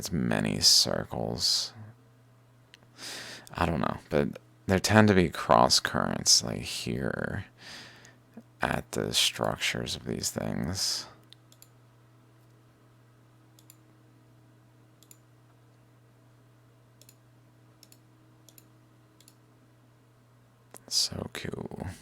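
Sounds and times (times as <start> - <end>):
low electrical hum: 0.0 - 22.0
computer mouse clicks: 11.2 - 11.8, 13.6 - 13.8, 15.0 - 15.2, 17.0 - 17.2, 17.8 - 19.4.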